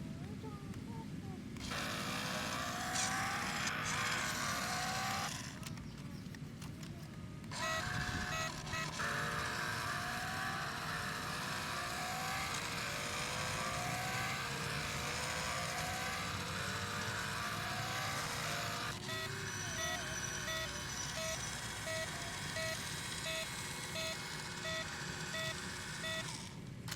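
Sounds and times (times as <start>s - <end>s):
simulated toy engine revving: 1.6s - 26.9s
short electronic tones: 7.5s - 26.6s.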